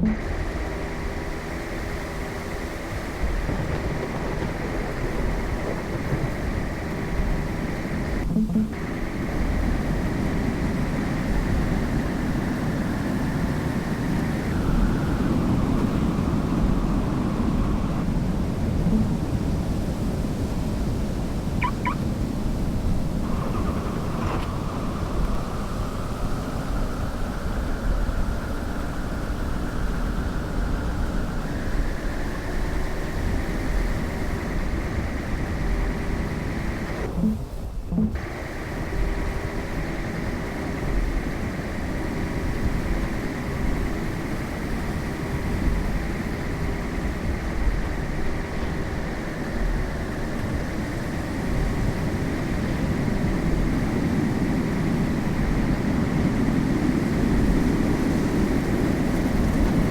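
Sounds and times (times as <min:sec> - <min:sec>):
car road and engine noise: 0:00.0 - 0:59.9
short high beeps: 0:21.6 - 0:22.0.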